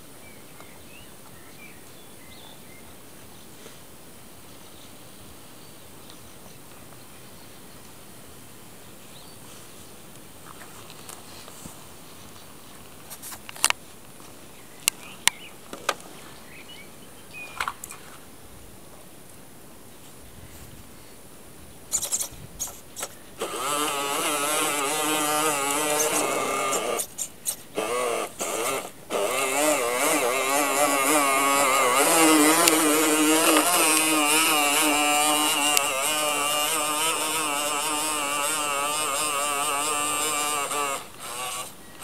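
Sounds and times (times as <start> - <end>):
toy truck motor whine: 23.0 - 42.0.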